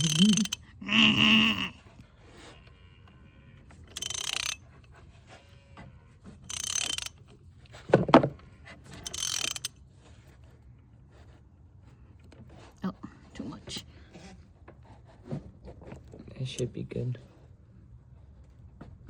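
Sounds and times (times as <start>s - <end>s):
socket ratchet clicking: 0.0s - 0.6s, 3.9s - 4.6s, 6.5s - 7.3s, 9.0s - 9.7s.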